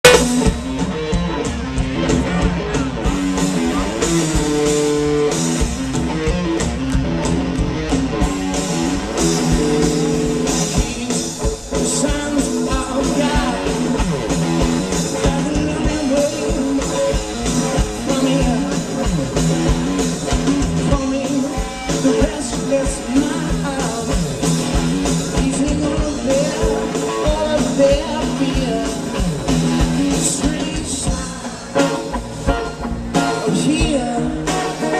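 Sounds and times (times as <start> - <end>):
drums: 0.0 - 34.9
electric guitar: 0.0 - 34.9
man singing: 9.4 - 19.5, 20.4 - 32.0, 33.2 - 34.9.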